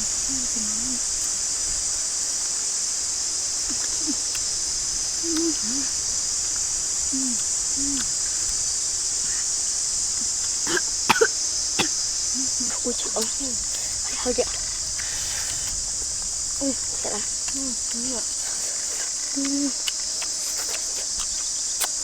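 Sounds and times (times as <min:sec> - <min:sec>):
high-pitched insect chorus: 0:00.0 - 0:22.0
short low calls: 0:03.6 - 0:09.5.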